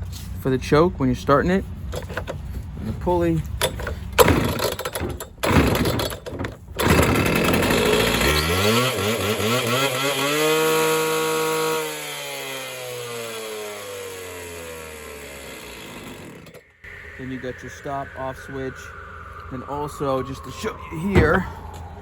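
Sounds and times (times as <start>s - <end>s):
starter cord yanks: 3.6s - 8.5s
cut-off saw engine revving: 6.8s - 16.6s.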